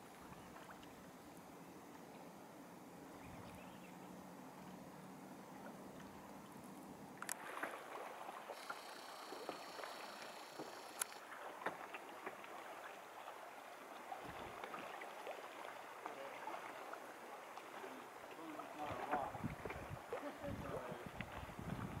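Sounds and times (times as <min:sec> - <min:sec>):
water lapping against hulls: 0:00.0 - 0:01.3, 0:05.3 - 0:22.0
paddles splashing in water: 0:00.0 - 0:02.1, 0:04.8 - 0:22.0
faint high buzz: 0:08.4 - 0:11.2
sharp ticks: 0:08.6 - 0:11.2.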